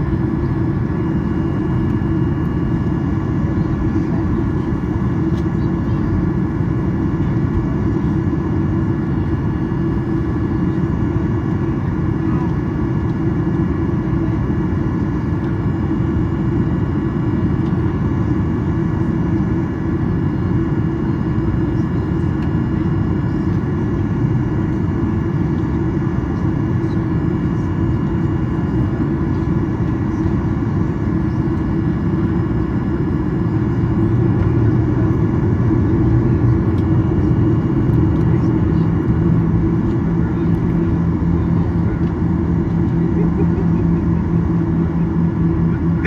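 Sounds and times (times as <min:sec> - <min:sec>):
jet engines idling: 0:00.0 - 0:46.0.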